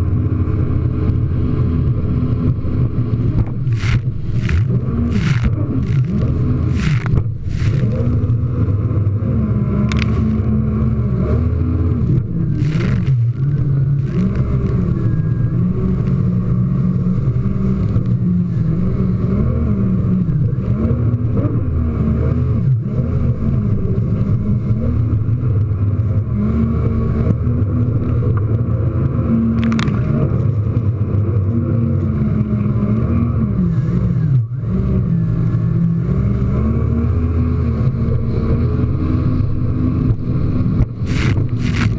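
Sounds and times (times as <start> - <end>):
jet ski engine revving: 0.0 - 41.9
water hitting hull: 2.5 - 8.8, 40.8 - 41.9.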